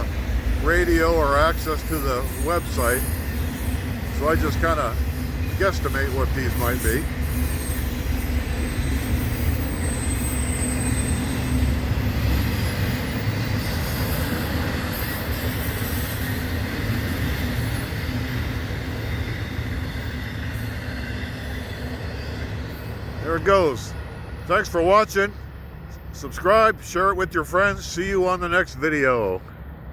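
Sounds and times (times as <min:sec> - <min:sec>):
train wheels rumbling on rail: 0:00.0 - 0:29.9
faint high squeal: 0:05.9 - 0:16.5.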